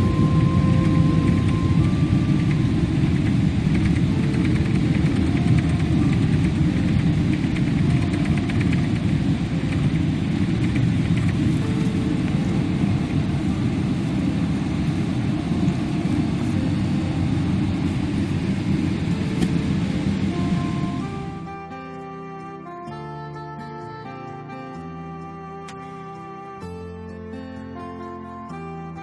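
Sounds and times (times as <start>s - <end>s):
airliner cabin rumble: 0.0s - 22.9s
soft music: 0.0s - 29.0s.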